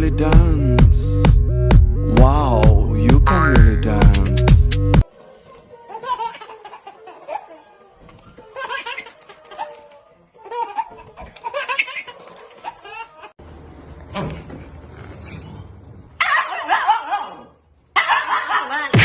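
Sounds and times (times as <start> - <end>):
faint background music: 2.1 - 13.4.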